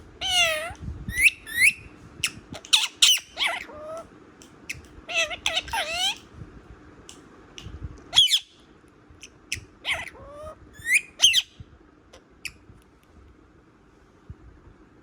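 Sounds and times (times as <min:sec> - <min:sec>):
parrot squawking and chirping: 0:00.2 - 0:04.0, 0:04.6 - 0:06.2, 0:08.1 - 0:08.6, 0:09.2 - 0:11.6.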